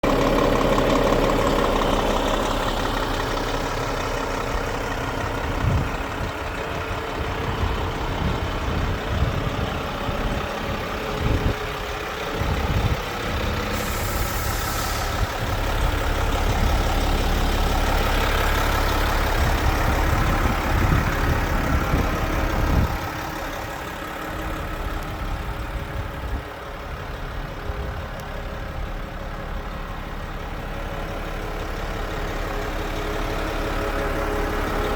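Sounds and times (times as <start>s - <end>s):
diesel truck idling: 0.0s - 34.9s
brief hiss: 13.7s - 15.3s.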